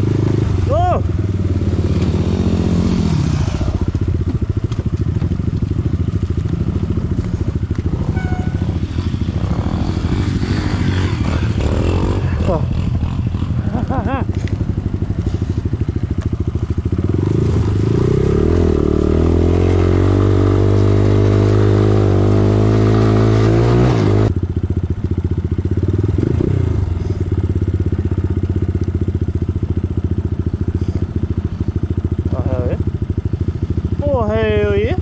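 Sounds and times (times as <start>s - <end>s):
dirt bike engine revving: 0.0s - 4.3s, 6.2s - 24.4s.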